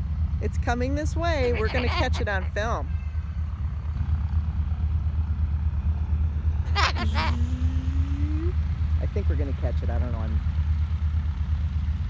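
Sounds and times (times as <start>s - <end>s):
short call with rising hum: 6.7s - 8.6s.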